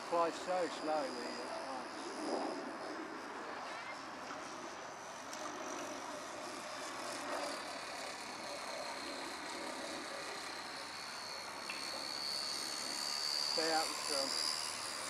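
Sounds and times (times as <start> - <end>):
electric model plane motor whine: 0.0 - 15.0
steady hiss: 10.8 - 15.0.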